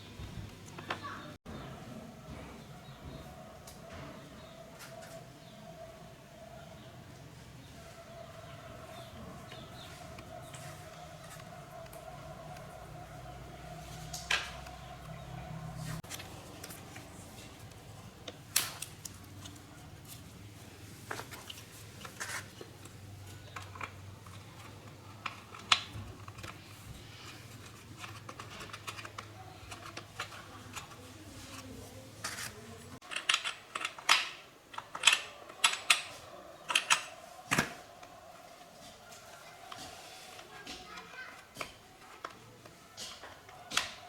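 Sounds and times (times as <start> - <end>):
hand tools clicking and tapping: 21.0 - 44.0.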